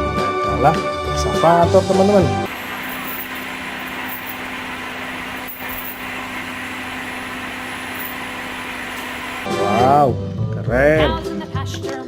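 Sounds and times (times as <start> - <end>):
engine-like drone: 2.5 - 9.9.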